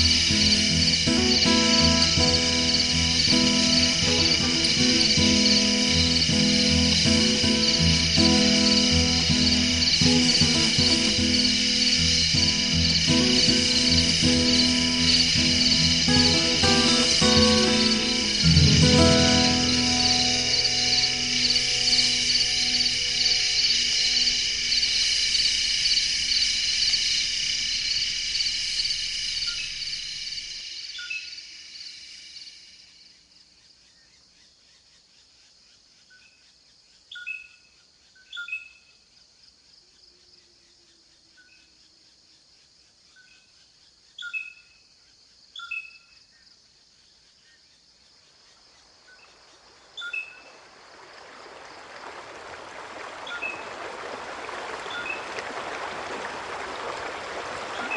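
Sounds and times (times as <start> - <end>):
bird chirping: 0.0 - 27.2, 47.5 - 52.2, 56.9 - 57.9
running water: 0.0 - 30.6, 48.8 - 57.9
crickets trilling: 0.0 - 57.9.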